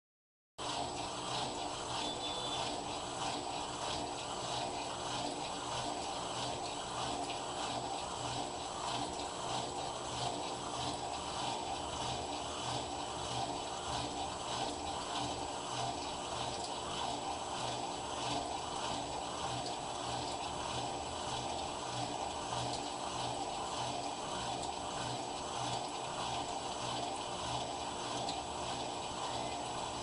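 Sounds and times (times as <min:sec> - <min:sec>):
washing machine churning: 0:00.6 - 0:30.0.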